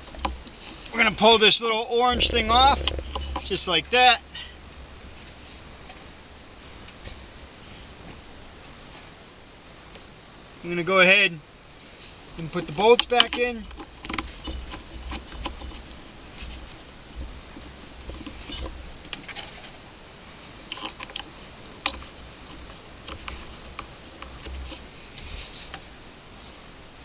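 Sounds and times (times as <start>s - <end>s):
low hum: 2.0s - 6.5s.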